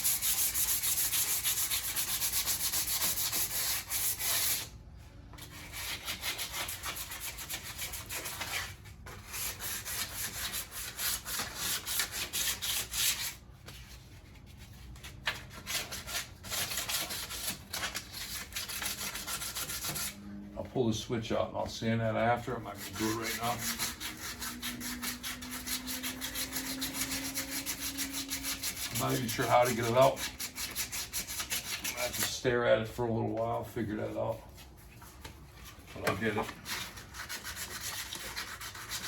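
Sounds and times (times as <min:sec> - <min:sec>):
sandpaper rubbing on metal: 0:00.0 - 0:04.7, 0:05.4 - 0:13.4, 0:15.5 - 0:20.2, 0:22.4 - 0:32.4, 0:36.2 - 0:39.0.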